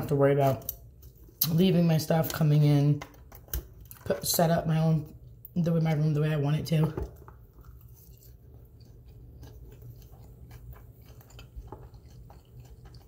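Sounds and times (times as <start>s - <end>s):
person chewing food: 7.0s - 13.0s.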